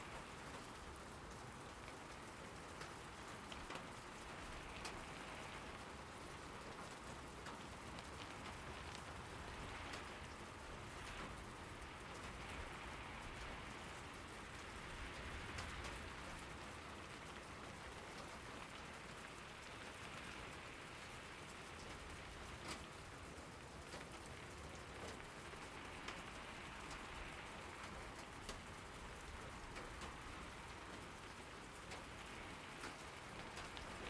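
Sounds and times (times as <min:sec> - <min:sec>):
rain hissing on surfaces: 0:00.0 - 0:34.0
rain drop taps: 0:17.3 - 0:34.0.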